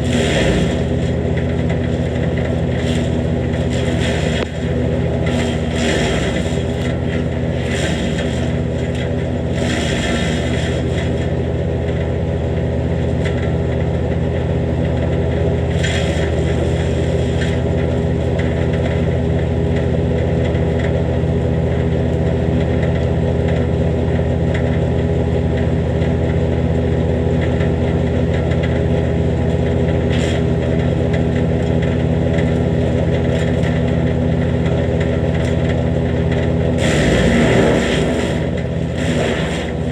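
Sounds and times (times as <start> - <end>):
wood chipper engine running: 0.0 - 39.9
rasping rushes of noise: 36.8 - 39.9.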